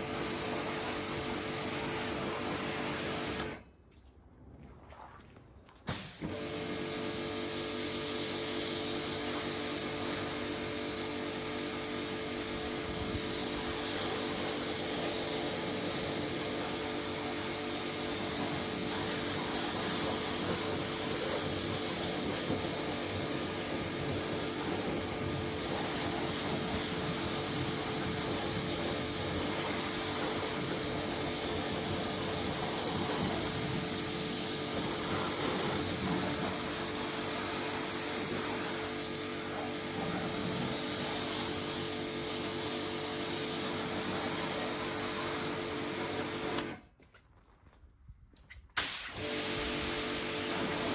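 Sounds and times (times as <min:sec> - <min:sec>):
pressure washer motor hum: 0:00.0 - 0:03.7, 0:05.8 - 0:46.8, 0:48.8 - 0:50.9
water spray hissing: 0:04.9 - 0:06.5, 0:12.4 - 0:46.8, 0:48.8 - 0:50.9.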